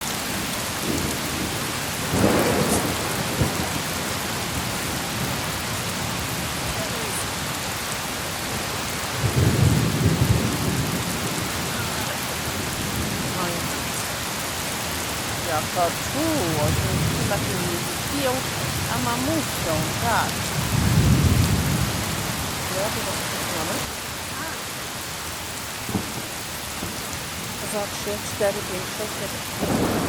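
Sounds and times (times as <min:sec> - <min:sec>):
rain on a tent: 0:00.0 - 0:30.0
thunder rolling: 0:00.8 - 0:07.4, 0:08.3 - 0:14.2, 0:15.4 - 0:23.9, 0:29.6 - 0:30.0.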